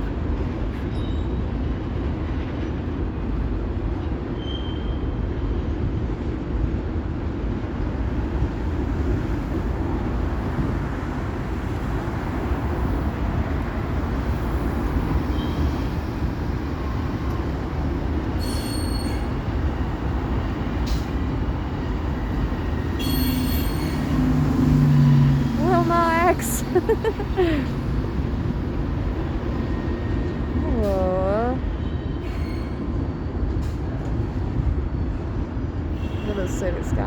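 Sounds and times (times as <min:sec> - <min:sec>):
train rumbling on rails: 0:00.0 - 0:37.0
wheel squeals: 0:04.4 - 0:05.1, 0:18.3 - 0:19.4, 0:22.8 - 0:24.2.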